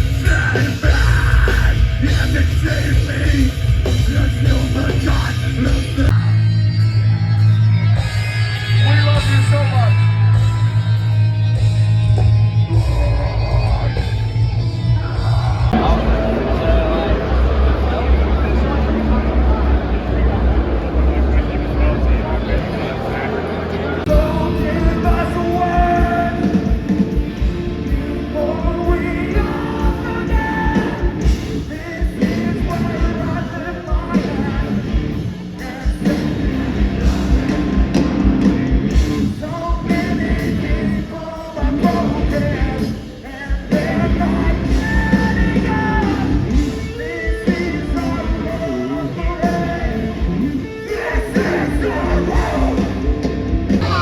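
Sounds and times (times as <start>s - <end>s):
person singing: 0.0s - 7.2s, 24.0s - 37.6s, 39.1s - 54.0s
drums: 0.0s - 54.0s
electric guitar: 0.0s - 54.0s.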